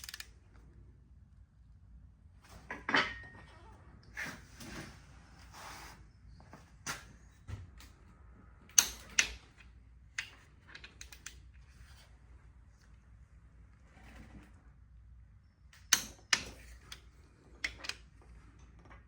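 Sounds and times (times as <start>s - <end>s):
engine parts and tools clicking: 0.0s - 0.4s, 8.7s - 11.6s, 15.7s - 19.0s.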